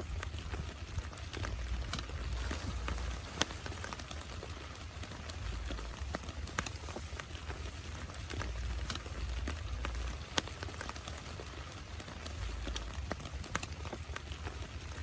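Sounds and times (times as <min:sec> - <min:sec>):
rain drops ticking: 0:00.0 - 0:15.0.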